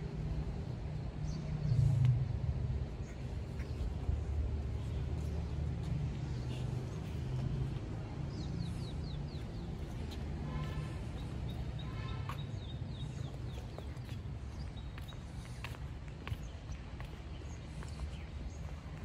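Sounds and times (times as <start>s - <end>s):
steady low rumble: 0.0s - 11.1s
birds chirping: 3.0s - 19.0s.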